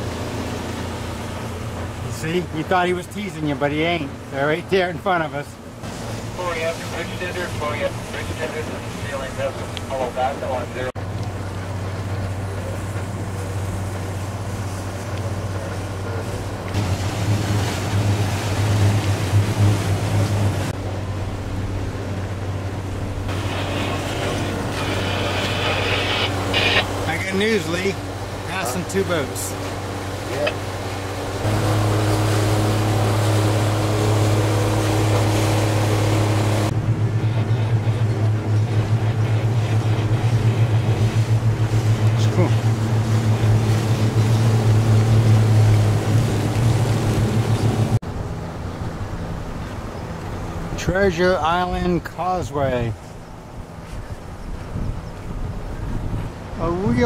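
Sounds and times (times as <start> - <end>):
motorboat engines humming: 0.0 - 57.0
water wash: 0.0 - 57.0
wind: 0.0 - 57.0
wind noise: 53.3 - 57.0.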